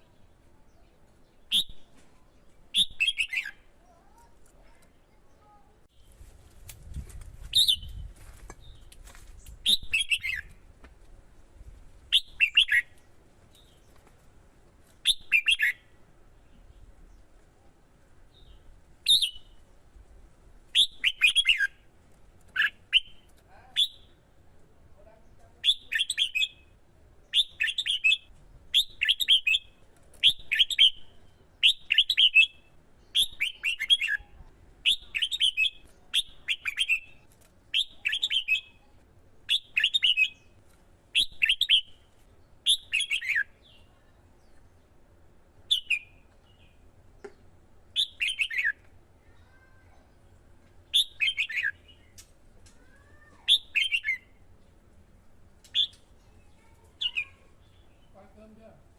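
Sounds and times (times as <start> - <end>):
bulbul singing: 2.7 - 3.7, 12.1 - 13.9, 15.0 - 15.9, 20.7 - 21.8, 25.6 - 40.6, 45.6 - 48.9, 50.9 - 52.3, 53.5 - 54.4.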